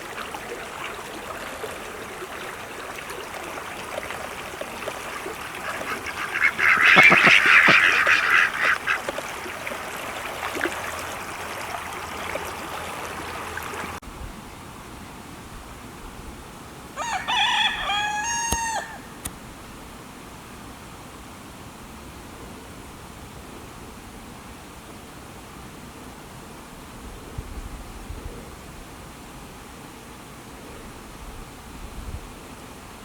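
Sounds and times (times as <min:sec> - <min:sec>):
ducks quacking: 0:04.6 - 0:09.8.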